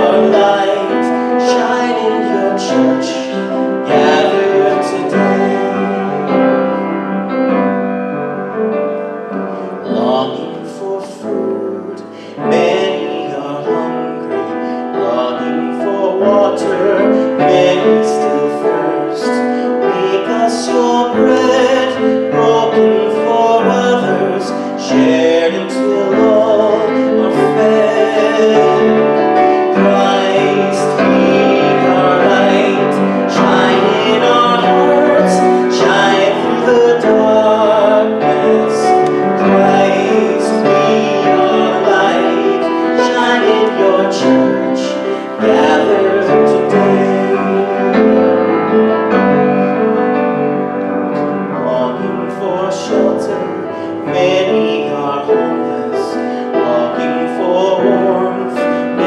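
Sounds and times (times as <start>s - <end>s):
person singing a hymn: 0.0s - 59.0s
piano accompaniment: 0.0s - 59.0s.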